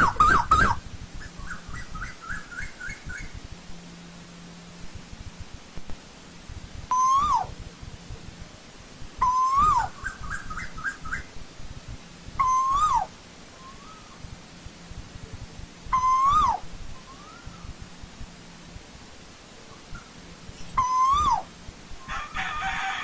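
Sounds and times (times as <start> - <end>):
koel calling: 0.0 - 0.8, 6.9 - 7.6, 9.2 - 11.3, 12.4 - 14.2, 15.9 - 17.7, 20.8 - 21.5.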